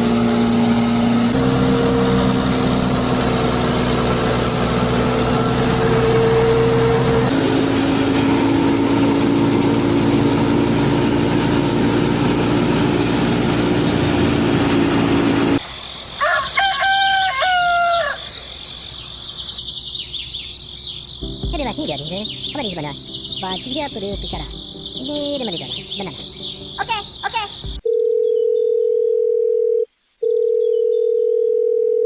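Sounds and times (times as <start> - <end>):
rooster crowing: 16.2 - 18.7.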